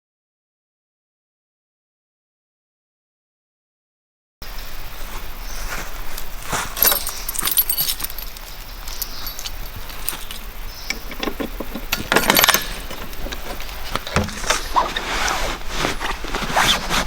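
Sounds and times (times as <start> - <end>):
small metal items clinking: 5.4 - 17.0.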